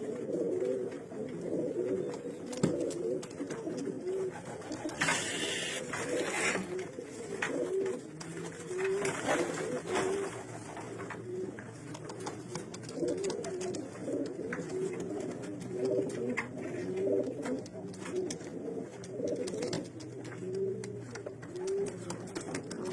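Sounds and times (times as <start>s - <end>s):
pigeons cooing: 0.0s - 22.9s.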